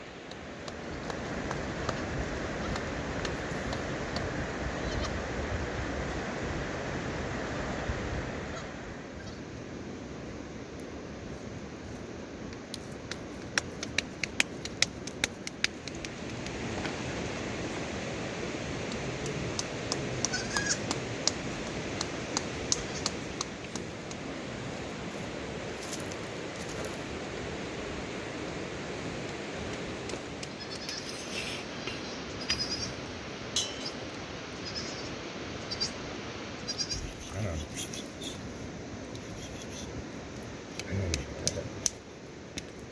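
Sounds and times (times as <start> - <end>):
sharp clicks and taps: 12.6 - 16.6
heavy rain hissing: 16.5 - 42.5
sharp clinks and ticks: 33.6 - 34.3.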